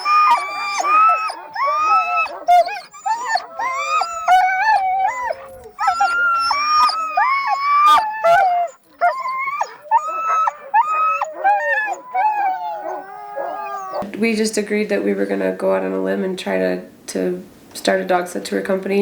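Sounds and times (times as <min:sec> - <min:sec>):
huskies howling and yelping: 0:00.0 - 0:14.0.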